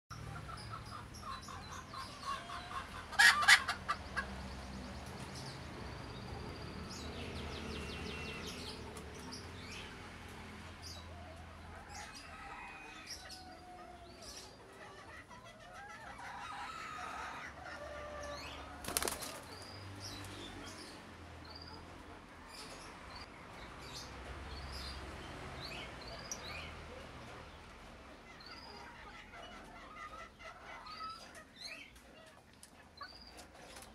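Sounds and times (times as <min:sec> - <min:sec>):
pigeon wings flapping: 0:18.8 - 0:19.6.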